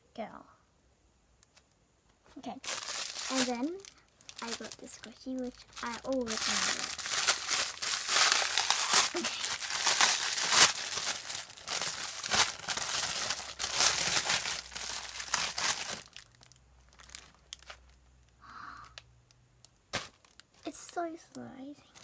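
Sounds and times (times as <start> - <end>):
plastic packaging crinkling and tearing: 2.5 - 18.0, 19.9 - 21.1.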